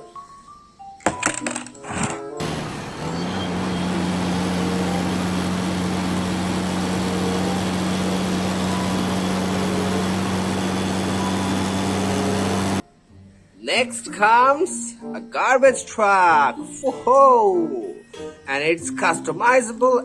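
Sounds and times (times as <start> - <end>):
truck engine idling: 1.9 - 12.8.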